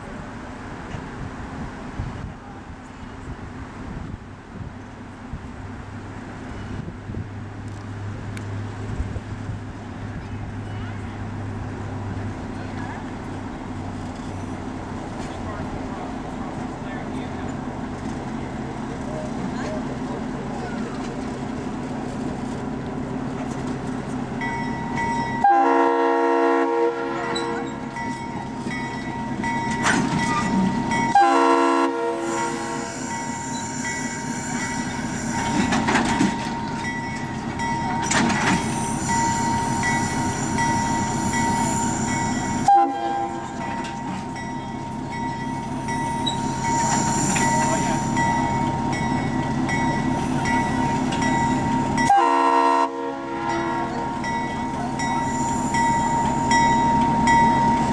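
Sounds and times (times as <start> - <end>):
train running on rails: 0.0 - 57.9
locomotive horn blasts: 25.4 - 27.9, 31.1 - 33.5, 39.4 - 43.6, 52.0 - 54.3.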